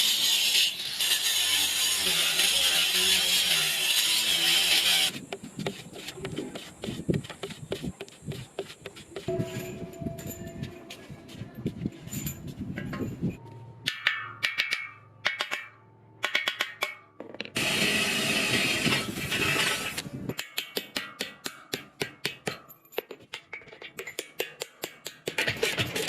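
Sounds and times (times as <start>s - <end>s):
harsh scraping: 17.6s - 20.1s.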